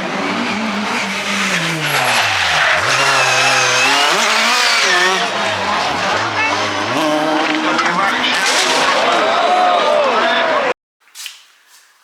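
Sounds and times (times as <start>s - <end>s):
rally car engine revving hard: 0.0s - 9.4s
tyres skidding: 0.0s - 10.6s.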